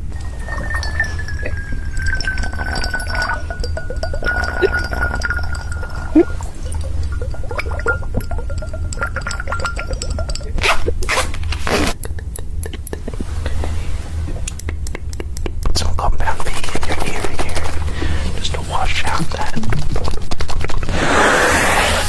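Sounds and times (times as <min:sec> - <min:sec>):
thin steady whine: 0:00.0 - 0:11.1
wet gurgling and bubbling: 0:00.0 - 0:11.5.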